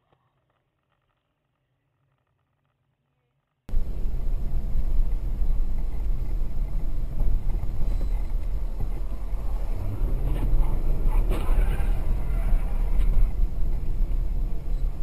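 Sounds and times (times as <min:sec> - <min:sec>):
car road and wind noise: 0:03.7 - 0:15.0.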